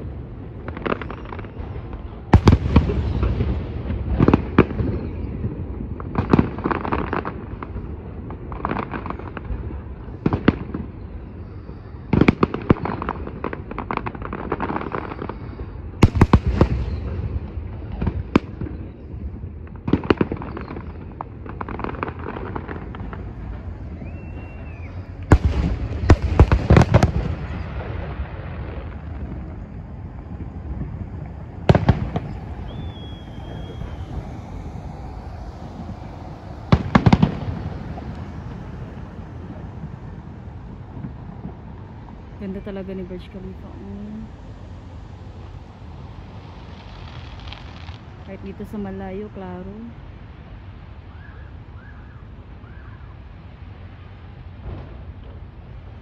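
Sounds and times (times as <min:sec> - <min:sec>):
firework shells bursting: 0:19.9 - 0:43.5.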